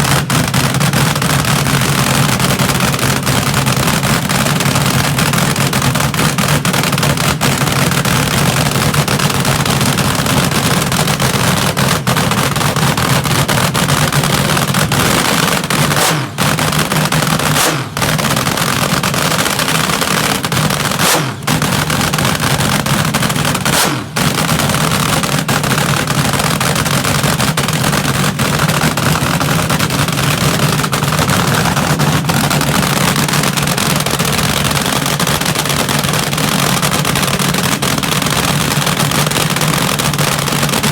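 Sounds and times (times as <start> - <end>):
dragster engine running loud: 0.0 - 40.9.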